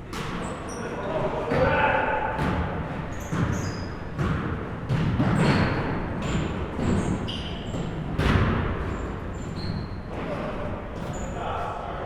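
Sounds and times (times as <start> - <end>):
sneaker squeaks: 0.0 - 11.7
murmur of large room: 0.0 - 12.0
basketball bouncing on hardwood: 2.4 - 7.1.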